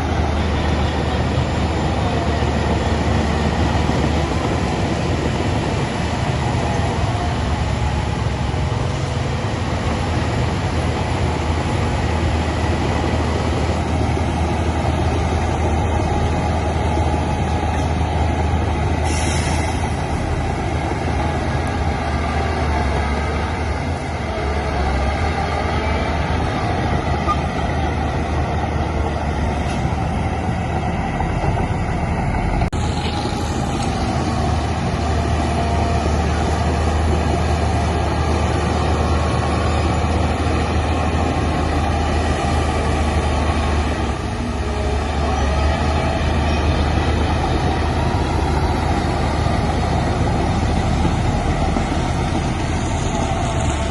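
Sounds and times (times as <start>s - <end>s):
heavy diesel machinery running: 0.0s - 53.9s
brief hiss: 19.0s - 19.9s.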